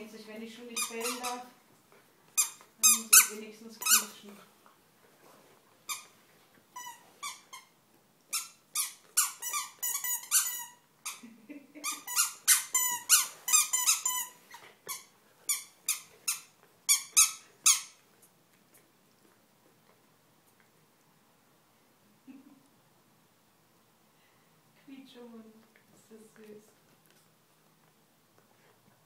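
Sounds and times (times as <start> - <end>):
squeaky toy squeaks: 0.8 - 1.4, 2.4 - 4.1, 6.8 - 7.7, 8.3 - 11.2, 11.8 - 18.0.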